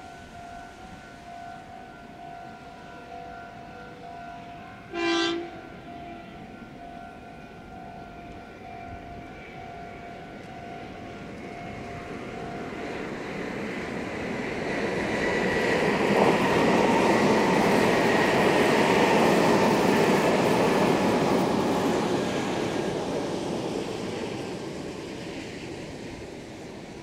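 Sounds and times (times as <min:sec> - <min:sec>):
train passing at speed: 0:00.0 - 0:27.0
train musical horn: 0:03.7 - 0:06.6.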